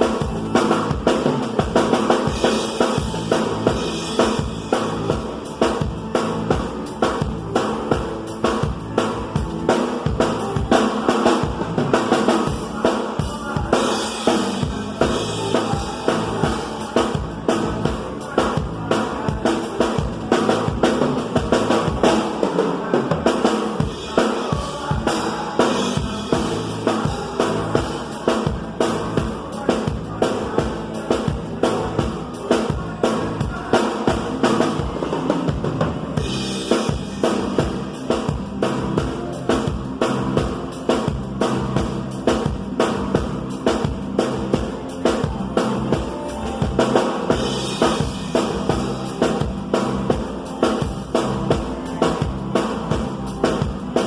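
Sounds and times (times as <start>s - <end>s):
bass drum and snare beat: 0.0s - 22.4s, 23.1s - 54.0s
live band music: 0.0s - 54.0s.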